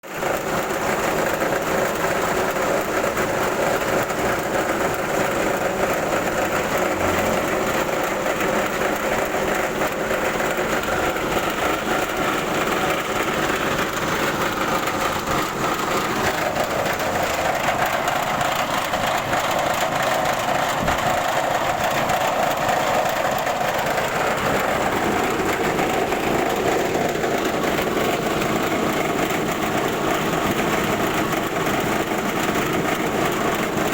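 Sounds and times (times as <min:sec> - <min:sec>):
milling machine whirring and rattling: 0:00.1 - 0:33.9.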